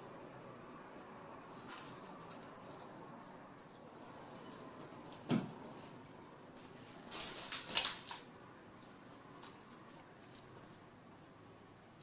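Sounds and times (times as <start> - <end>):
kitten rustling dried sprigs: 0.0 - 3.1, 4.1 - 10.9.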